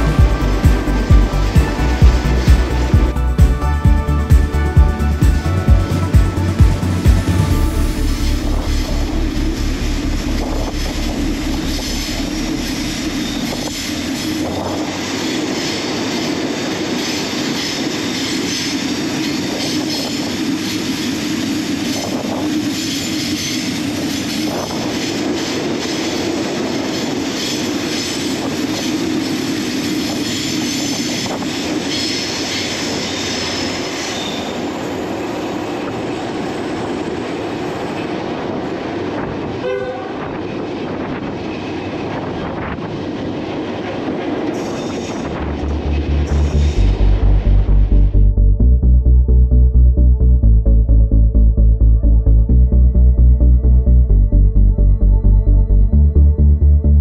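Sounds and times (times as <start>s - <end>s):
train wheels rumbling in tunnel: 0.0s - 57.0s
wheel squeal: 30.3s - 34.6s.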